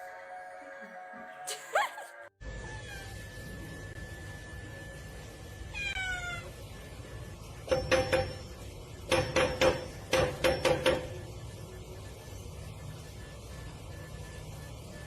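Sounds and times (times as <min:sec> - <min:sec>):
cat meowing: 0:02.6 - 0:03.2, 0:05.8 - 0:06.5.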